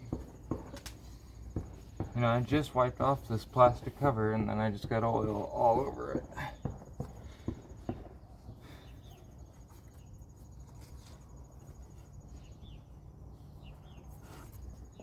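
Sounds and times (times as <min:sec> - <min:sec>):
bird chirps: 0:10.8 - 0:15.0.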